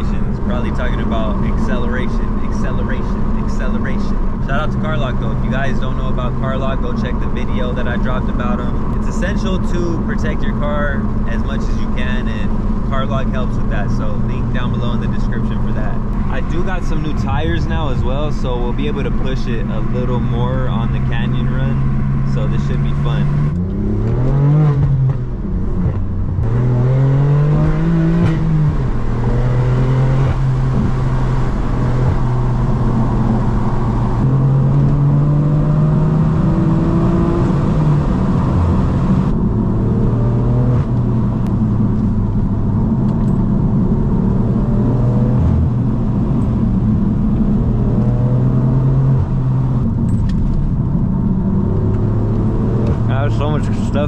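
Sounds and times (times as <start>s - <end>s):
car engine revving with gear changes: 0.0s - 54.0s.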